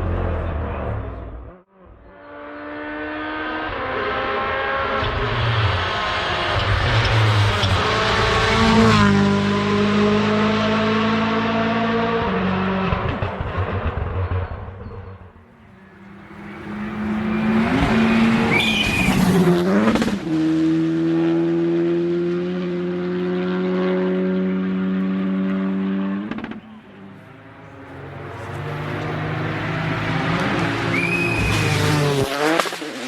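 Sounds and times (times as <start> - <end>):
rally car engines racing: 0.0 - 33.0.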